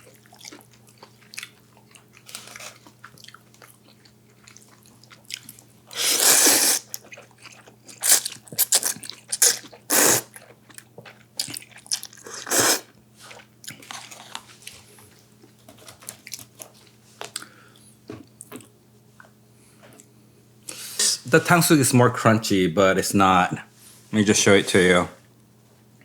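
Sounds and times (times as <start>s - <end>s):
crunchy bites of fried food: 0.0s - 14.9s
soft wet chewing: 0.0s - 20.9s.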